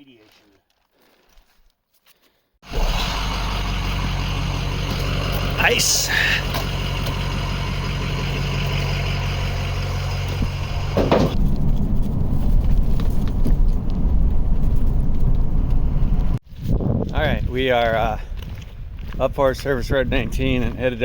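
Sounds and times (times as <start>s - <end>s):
truck engine running: 2.6s - 16.4s.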